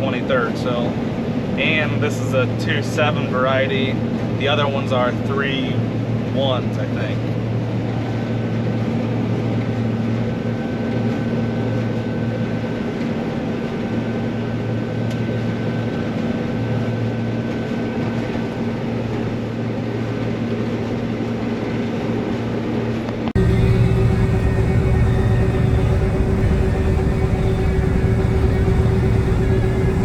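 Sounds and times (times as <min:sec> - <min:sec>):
combine harvester running: 0:23.4 - 0:30.0
faint high whine: 0:23.4 - 0:30.0.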